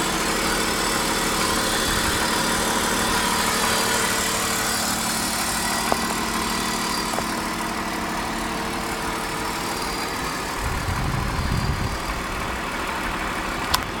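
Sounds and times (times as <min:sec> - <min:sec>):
car engine idling with knock: 0:00.0 - 0:14.0
low rumble: 0:10.6 - 0:13.2.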